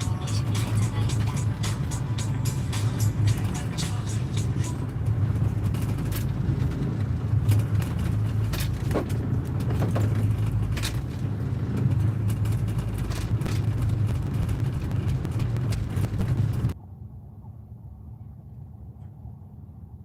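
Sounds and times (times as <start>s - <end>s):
boat engine humming: 0.0s - 20.0s
sharp clicks and knocks: 4.9s - 16.8s.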